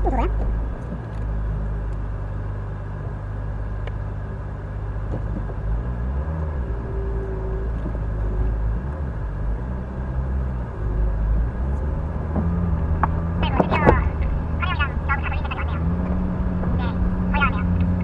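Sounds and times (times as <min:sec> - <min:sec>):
off-road vehicle engine: 0:00.0 - 0:18.0
steady whine: 0:06.6 - 0:18.0.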